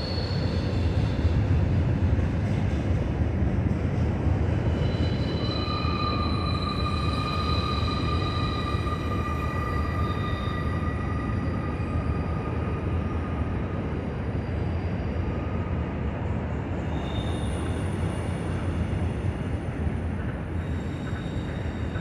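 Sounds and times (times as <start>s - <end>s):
high-pitched wheel squeals: 4.8s - 12.3s.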